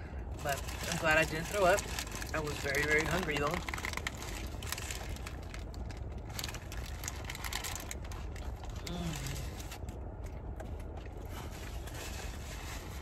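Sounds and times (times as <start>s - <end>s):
low rumble inside car: 0.0s - 13.0s
paper wrapper crinkling: 0.4s - 9.9s
person humming: 8.8s - 9.4s.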